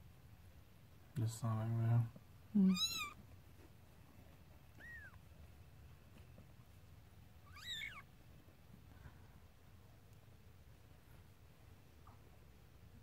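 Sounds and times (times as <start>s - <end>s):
kitten mewing: 2.6s - 3.2s, 4.8s - 5.2s, 7.4s - 8.1s.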